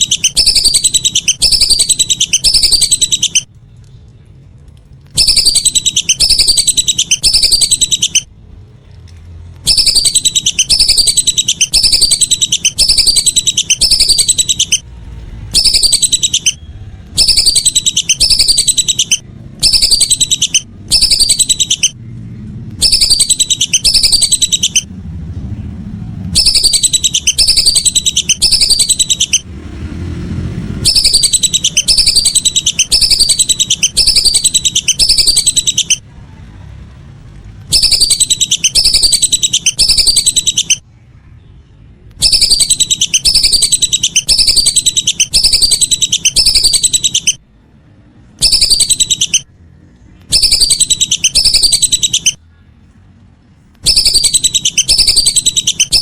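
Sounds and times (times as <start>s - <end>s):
whistling ducks calling: 0.0s - 3.5s, 5.2s - 8.3s, 9.7s - 14.8s, 15.5s - 22.0s, 22.8s - 24.9s, 26.3s - 29.5s, 30.8s - 36.0s, 37.7s - 40.8s, 42.2s - 47.4s, 48.4s - 49.5s, 50.3s - 52.4s, 53.8s - 56.0s
low background rumble: 0.0s - 56.0s.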